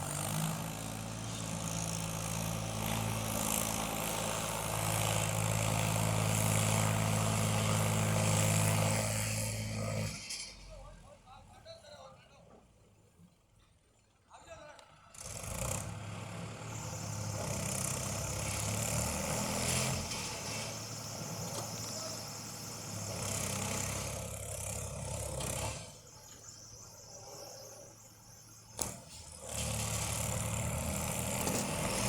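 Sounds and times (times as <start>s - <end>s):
tractor engine running: 15.2s - 32.0s.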